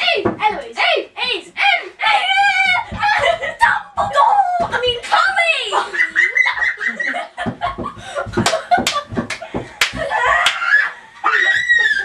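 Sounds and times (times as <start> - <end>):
girls laughing and calling out: 0.0 - 7.2.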